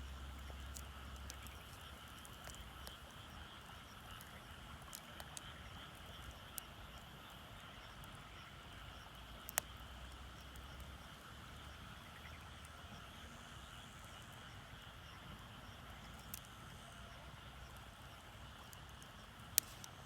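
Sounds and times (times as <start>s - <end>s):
wood fire crackling: 0.0s - 20.0s
fire sharp pops: 0.1s - 7.4s, 18.6s - 20.0s.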